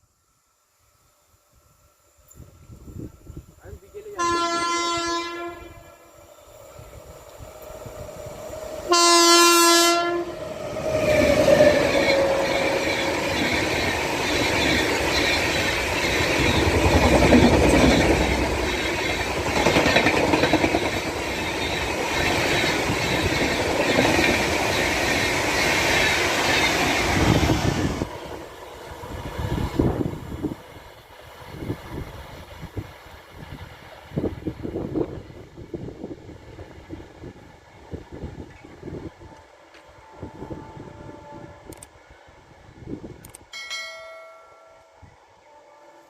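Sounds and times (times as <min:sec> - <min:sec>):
train horn blast: 0:04.1 - 0:06.1, 0:08.9 - 0:10.4, 0:39.2 - 0:41.8, 0:45.4 - 0:46.0
train wheels clattering over rails: 0:10.8 - 0:33.0.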